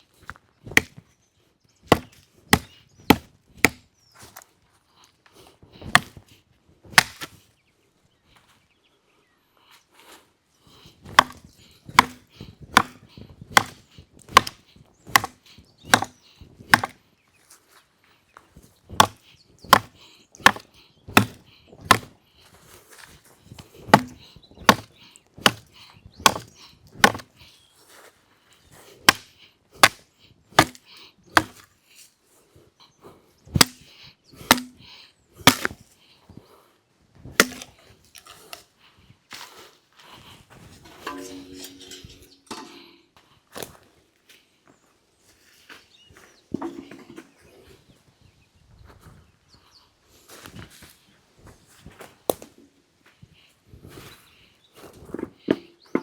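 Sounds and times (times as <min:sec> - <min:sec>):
wood being chopped: 0:00.7 - 0:01.0, 0:01.9 - 0:03.9, 0:05.9 - 0:06.2, 0:06.9 - 0:07.4, 0:11.1 - 0:17.0, 0:19.0 - 0:22.2, 0:23.9 - 0:27.3, 0:29.0 - 0:30.0, 0:30.6 - 0:31.7, 0:33.6 - 0:35.8, 0:37.4 - 0:38.3, 0:40.9 - 0:43.0, 0:46.6 - 0:47.3.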